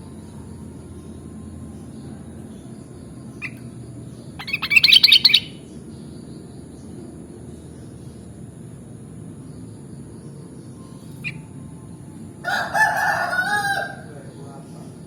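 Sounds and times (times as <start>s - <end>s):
bird chirping: 0.0s - 8.4s, 9.2s - 12.2s.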